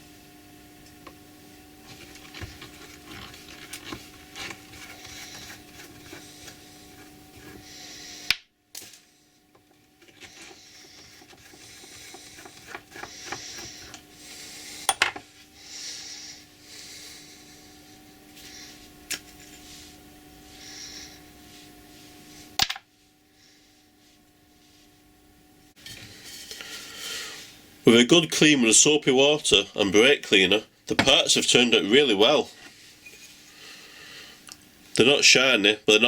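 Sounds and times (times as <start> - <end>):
steady low hum: 0.0 - 36.0
scrubbing hiss: 10.0 - 14.9, 15.6 - 18.9, 19.6 - 21.7.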